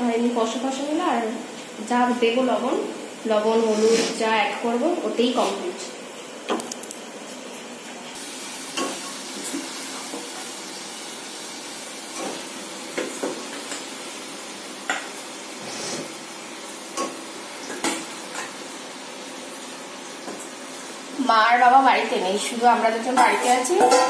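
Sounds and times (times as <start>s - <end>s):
oil sizzling in a pot: 0.0s - 24.0s.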